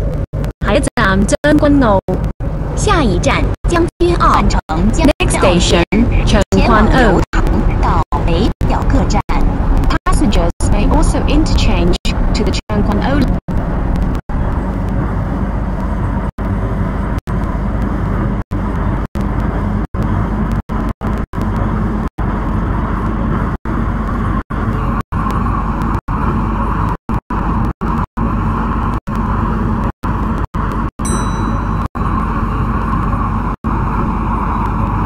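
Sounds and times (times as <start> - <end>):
high tone: 31.0 - 32.6.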